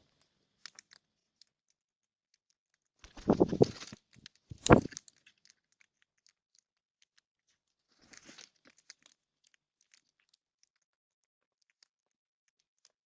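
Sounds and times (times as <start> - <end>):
birds rustling: 3.0 - 5.0.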